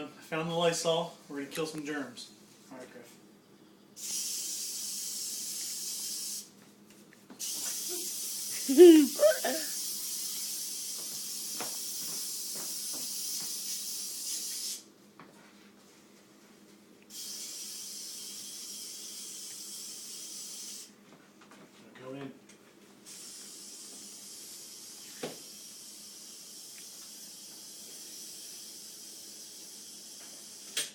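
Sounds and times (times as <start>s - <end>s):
aerosol spray hissing: 4.0s - 6.5s, 7.4s - 14.8s, 17.1s - 21.0s, 23.1s - 30.9s.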